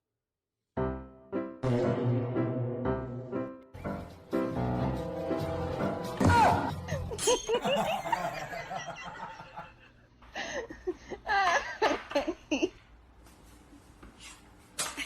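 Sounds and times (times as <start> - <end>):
person laughing: 6.8 - 12.8.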